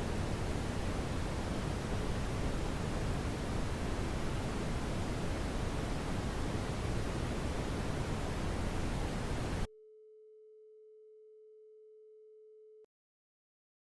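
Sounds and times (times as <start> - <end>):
brown noise hiss: 0.0 - 9.7
pure steady tone: 0.0 - 9.7.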